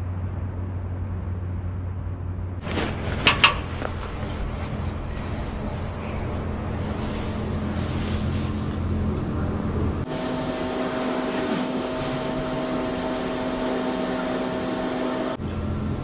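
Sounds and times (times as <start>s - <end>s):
vehicle hum: 8.5s - 15.4s.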